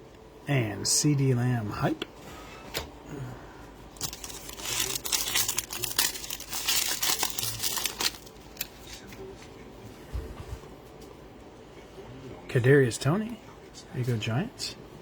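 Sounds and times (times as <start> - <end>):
foil wrapper tearing and crinkling: 4.0 - 9.0.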